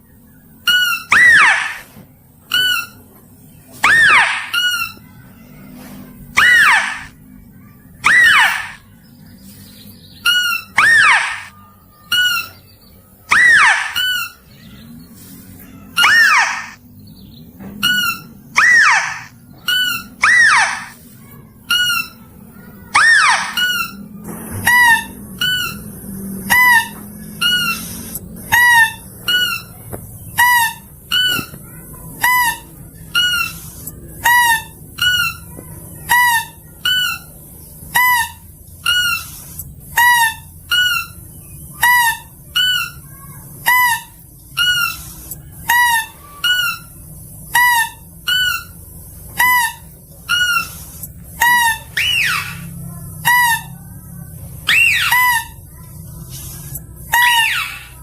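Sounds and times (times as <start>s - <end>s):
mouse-deer calls: 0.7s - 1.8s, 6.4s - 7.1s, 10.3s - 12.6s, 13.3s - 14.8s, 15.6s - 16.8s, 17.8s - 21.0s, 21.7s - 29.8s.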